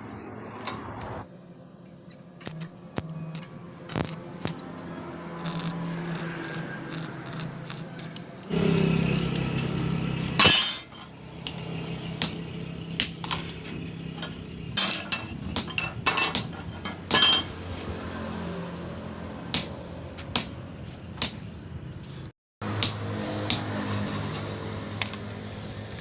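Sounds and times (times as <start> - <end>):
low hum: 0.8 - 18.0
metal bars clanking: 9.4 - 12.4, 13.0 - 17.6.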